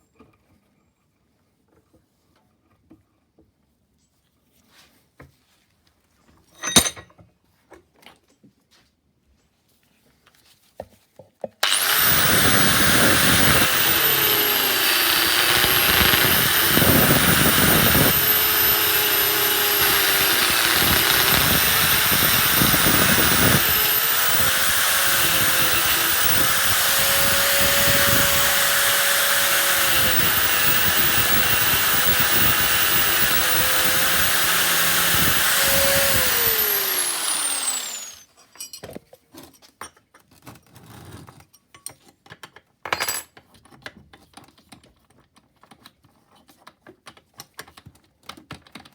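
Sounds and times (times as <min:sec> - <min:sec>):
angle grinder cutting metal: 0:11.6 - 0:38.3.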